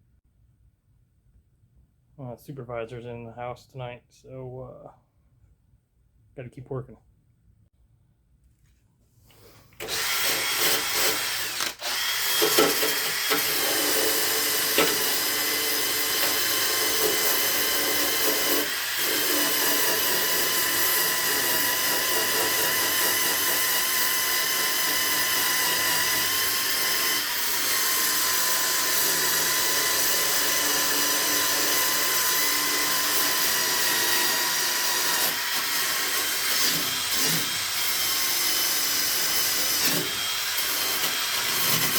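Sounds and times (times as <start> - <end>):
electric power tool whining: 9.8 - 41.9.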